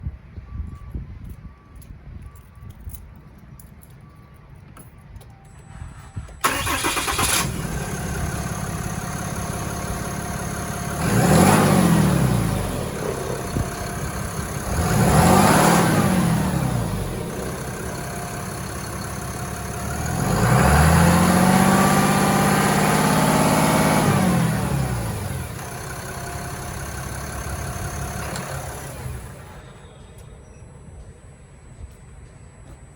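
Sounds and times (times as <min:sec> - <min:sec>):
pickup engine starting: 0:05.7 - 0:30.2
engine revving: 0:06.4 - 0:29.6
engine idling: 0:06.4 - 0:30.2.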